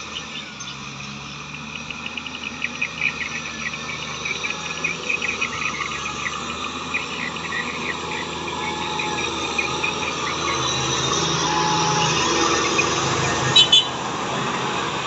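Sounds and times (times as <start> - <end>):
insects chirping: 0.0 - 15.0
tractor diesel engine running: 0.0 - 15.0.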